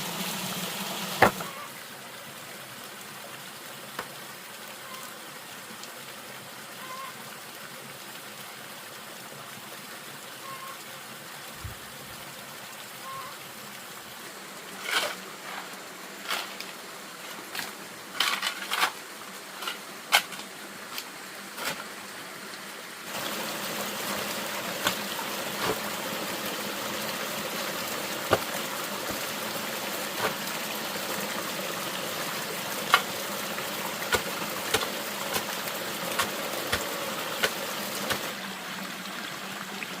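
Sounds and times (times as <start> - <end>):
water running: 0.0 - 1.7, 23.1 - 38.5.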